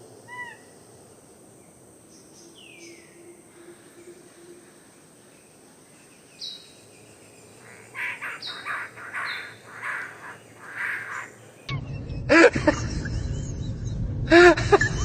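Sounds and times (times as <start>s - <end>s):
harsh bird calls: 2.2s - 11.9s.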